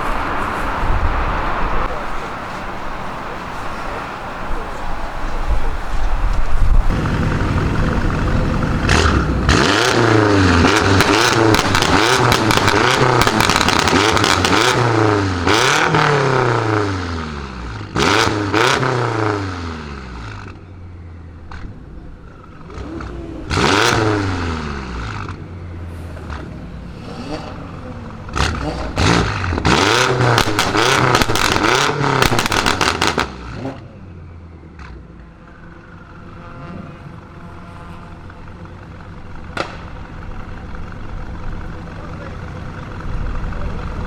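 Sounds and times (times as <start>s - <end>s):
car engine revving: 0.0s - 44.0s
exhaust cracks and pops: 10.6s - 14.9s, 28.4s - 33.8s, 39.0s - 40.7s.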